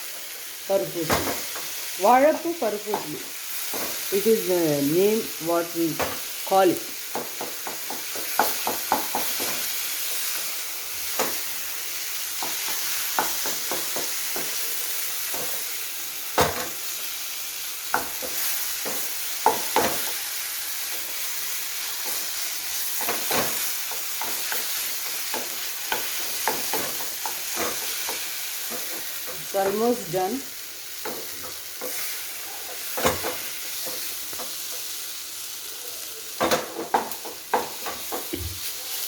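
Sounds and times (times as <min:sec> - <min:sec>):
food sizzling in oil: 0:00.0 - 0:39.0
spatula scraping a pan: 0:31.0 - 0:35.0.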